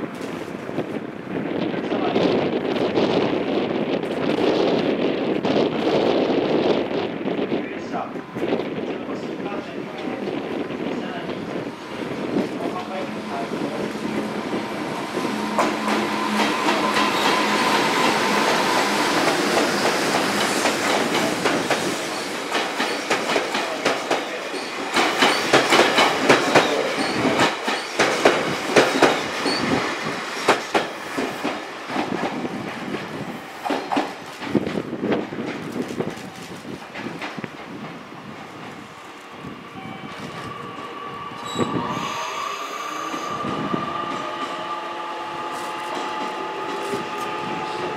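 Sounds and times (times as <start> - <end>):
train wheels rumbling on rail: 0.0 - 47.9
wheels clacking over rail joints: 15.4 - 29.8.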